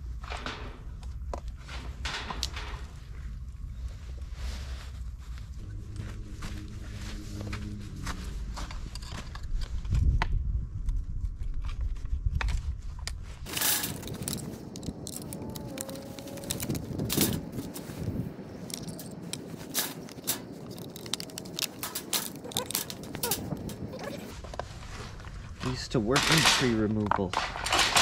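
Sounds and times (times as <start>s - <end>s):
low rumble: 0.0s - 25.7s
clicks rattles and crunching: 13.5s - 24.3s, 25.6s - 28.0s.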